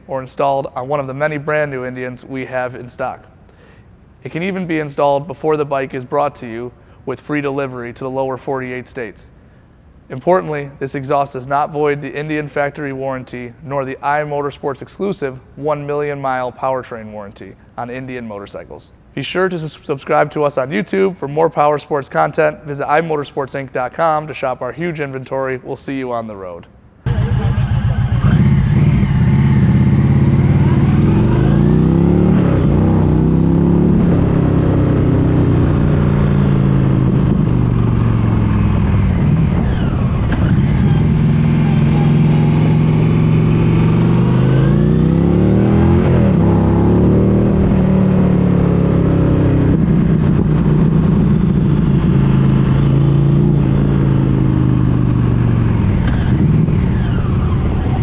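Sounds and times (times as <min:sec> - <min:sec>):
motorcycle engine accelerating: 0:27.0 - 0:58.0.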